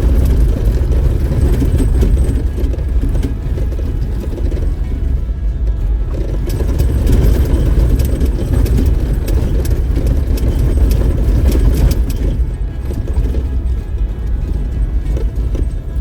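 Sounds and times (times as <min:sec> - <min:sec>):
engine and road rumble: 0:00.0 - 0:16.0
vehicle body clicks and knocks: 0:00.0 - 0:16.0.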